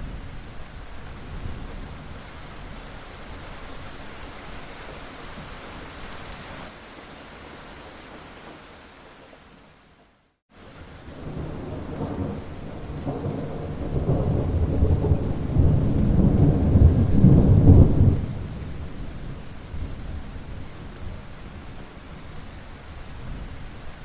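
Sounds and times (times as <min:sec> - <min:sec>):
steady rain: 0:00.0 - 0:24.0
thunder rumbling: 0:11.0 - 0:21.8.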